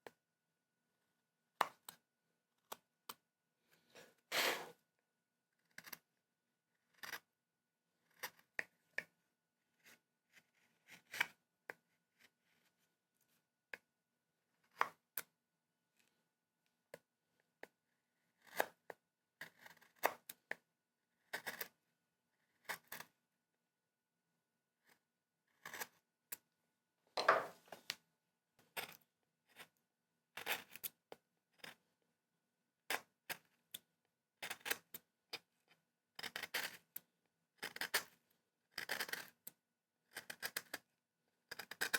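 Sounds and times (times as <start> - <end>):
carving tools cutting wood: 6.9 - 7.3, 8.0 - 8.6, 18.4 - 18.8, 19.4 - 20.3, 25.5 - 26.0, 36.2 - 36.8, 37.6 - 38.1, 38.8 - 39.4, 40.1 - 40.8, 41.5 - 41.9.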